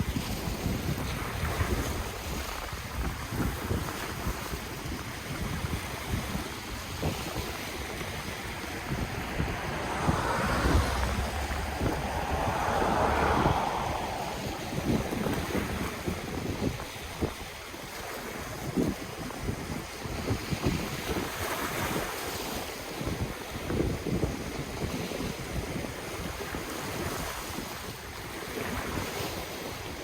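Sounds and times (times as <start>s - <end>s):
ocean waves washing ashore: 0.0s - 20.0s
wind buffeting microphone: 0.0s - 29.3s.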